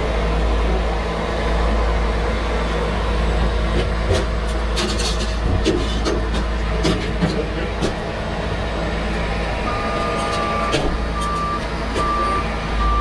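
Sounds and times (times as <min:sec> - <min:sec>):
diesel truck engine running: 0:00.0 - 0:13.0
backup alarm beeping: 0:09.7 - 0:13.0.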